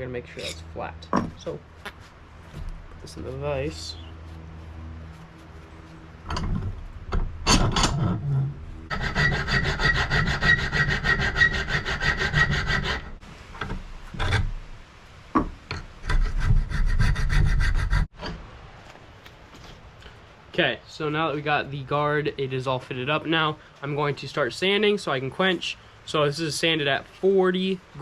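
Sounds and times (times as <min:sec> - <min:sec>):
hand file rasping on steel: 0:08.9 - 0:13.2, 0:16.1 - 0:18.1.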